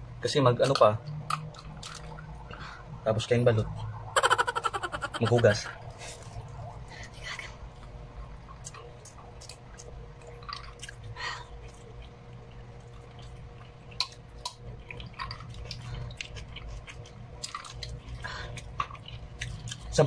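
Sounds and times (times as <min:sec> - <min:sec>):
chewing food close-up: 0:00.6 - 0:02.6, 0:07.8 - 0:20.0
steady low hum: 0:01.0 - 0:19.9.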